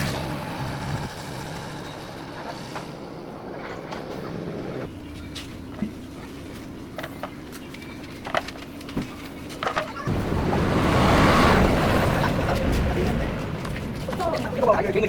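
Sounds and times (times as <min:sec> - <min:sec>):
low motor hum: 0:10.1 - 0:14.6
loud rushing noise: 0:10.1 - 0:15.0.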